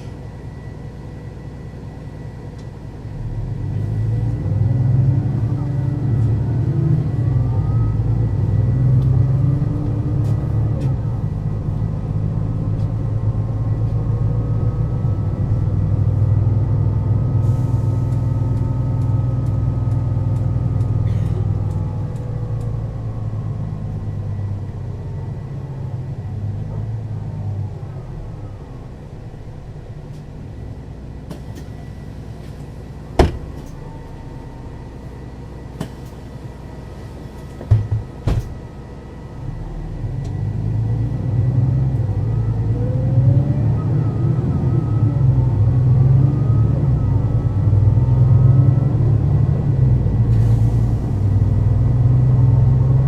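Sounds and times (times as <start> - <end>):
bus diesel engine: 0.0 - 53.0
sharp clunk: 33.2 - 33.8.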